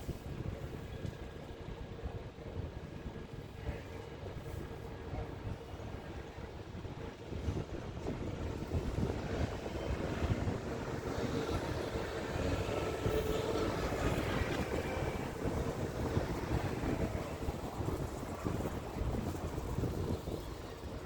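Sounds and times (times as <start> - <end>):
wind buffeting microphone: 0.0 - 21.0
road traffic rumble: 7.2 - 21.0.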